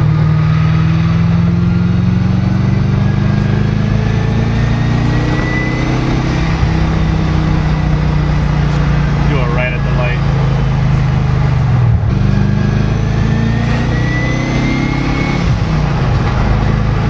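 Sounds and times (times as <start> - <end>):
car engine cruising from inside: 0.0 - 17.0
faint high turbo whistle: 4.5 - 6.6.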